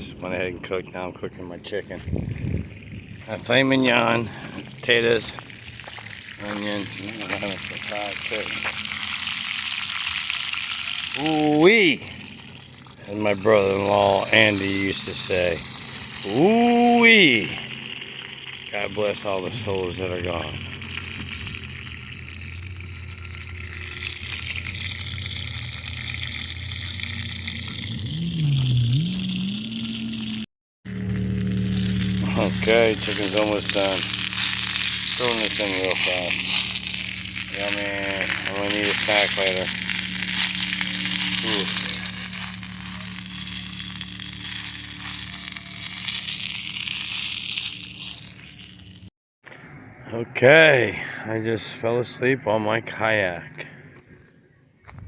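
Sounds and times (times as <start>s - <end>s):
low tone dipping and rising: 0.0s - 49.1s
low steady hum: 0.0s - 51.2s
chicken sizzling in oil: 3.5s - 49.1s.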